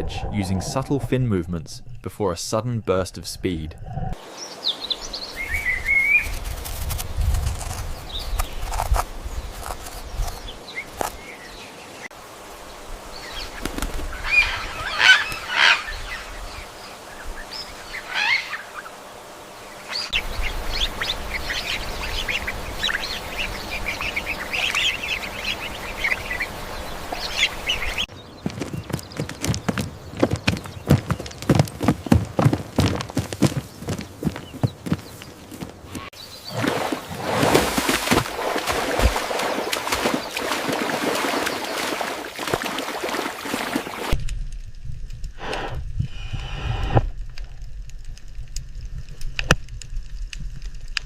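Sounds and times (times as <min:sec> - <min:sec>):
farm birds calling: 0:13.2 - 0:44.0
wings flapping: 0:13.4 - 0:15.4, 0:19.9 - 0:44.2.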